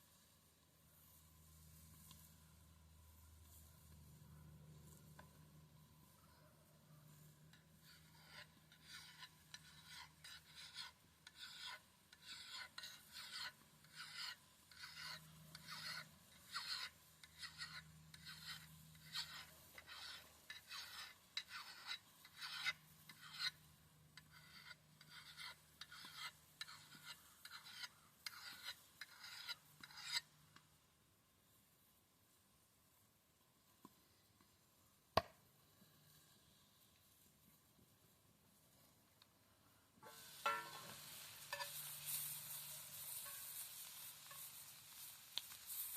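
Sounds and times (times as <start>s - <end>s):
axe blade being sharpened: 7.5s - 23.6s, 24.2s - 30.3s, 40.0s - 44.5s.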